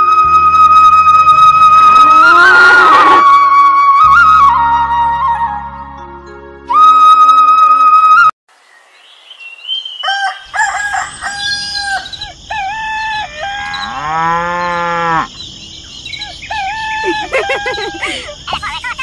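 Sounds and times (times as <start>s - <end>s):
rooster crowing: 10.0s - 12.2s
cow mooing: 13.6s - 15.3s.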